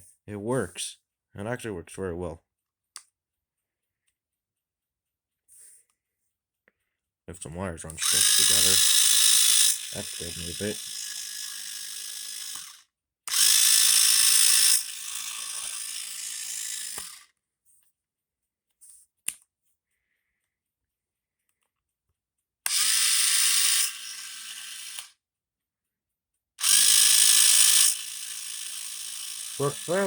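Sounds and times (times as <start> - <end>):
power drill motor whining: 8.0 - 17.2, 22.7 - 25.1, 26.6 - 30.0
click: 19.3 - 19.5.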